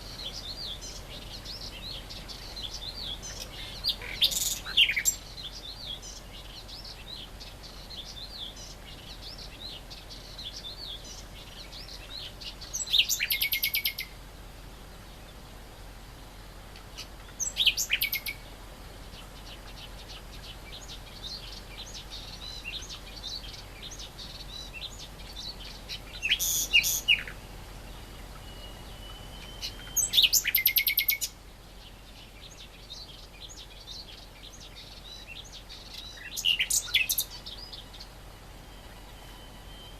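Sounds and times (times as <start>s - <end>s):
warbler harsh song phrases: 0.0s - 14.2s, 16.9s - 39.9s
faint high twittering: 16.9s - 18.5s, 19.1s - 39.9s.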